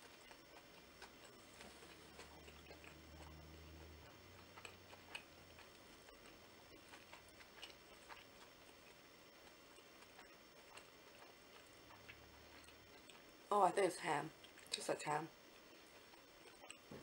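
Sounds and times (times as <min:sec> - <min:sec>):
low hum: 0:00.0 - 0:13.5
faint chewing: 0:00.0 - 0:17.0.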